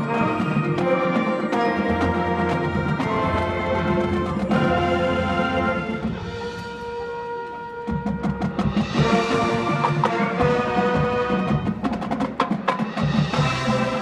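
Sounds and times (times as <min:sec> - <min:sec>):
drum and percussion strikes: 0:00.0 - 0:14.0
marching band brass chords: 0:00.0 - 0:14.0.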